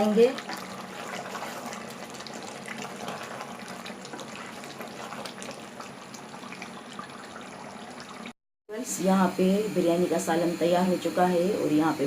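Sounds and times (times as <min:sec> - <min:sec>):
curry sizzling in oil: 0:00.0 - 0:08.4.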